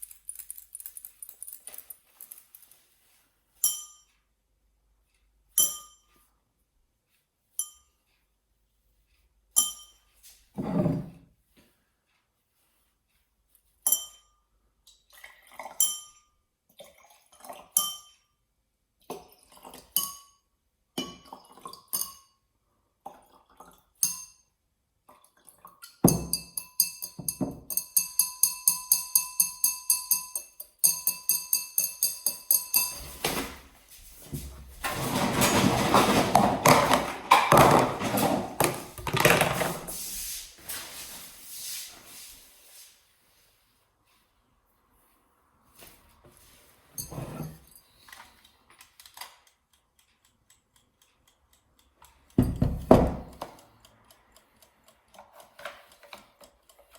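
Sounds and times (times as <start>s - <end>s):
held ringing tone: 26.1s - 33.2s
ringing clinks: 26.1s - 33.2s
fabric rustling and scraping: 37.9s - 47.7s.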